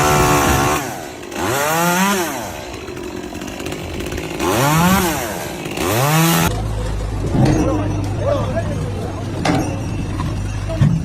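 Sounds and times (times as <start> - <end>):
small engine revving: 0.0 - 2.8, 3.5 - 6.5.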